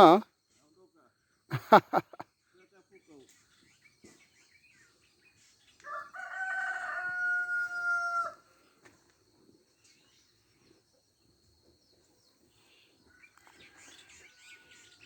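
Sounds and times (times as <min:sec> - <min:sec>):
rooster crowing: 0:05.9 - 0:08.4.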